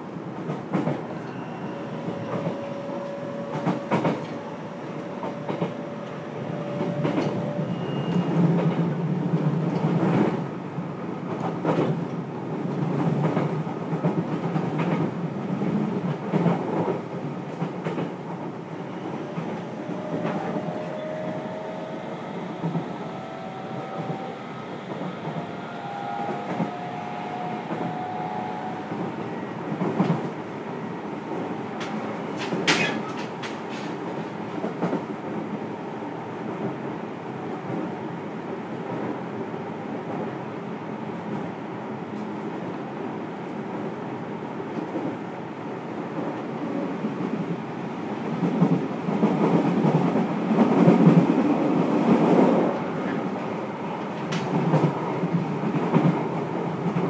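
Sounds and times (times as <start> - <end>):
train wheels rumbling on track: 0.0 - 57.0
clickety-clack of rail joints: 0.3 - 30.5, 31.2 - 35.7, 41.2 - 42.7, 46.0 - 57.0
faint whining tones: 18.7 - 29.7.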